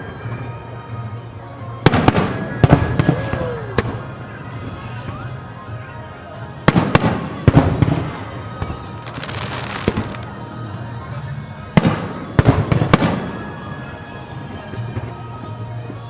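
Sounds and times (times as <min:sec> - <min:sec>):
fireworks crackling fizz: 0:00.0 - 0:16.0
music: 0:00.0 - 0:16.0
fireworks booming: 0:01.8 - 0:05.4, 0:06.6 - 0:10.4, 0:11.7 - 0:16.0.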